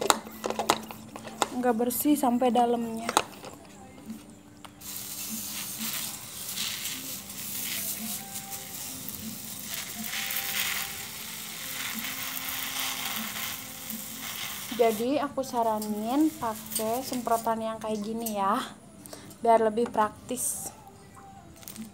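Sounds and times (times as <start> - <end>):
pressure sprayer hissing: 4.8 - 17.5.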